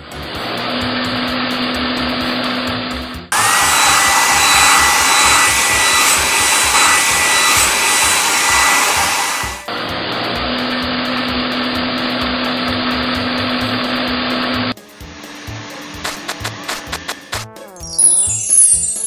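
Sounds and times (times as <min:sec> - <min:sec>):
steady rushing noise: 0:03.3 - 0:09.7
hissing air blower whine: 0:03.3 - 0:17.3.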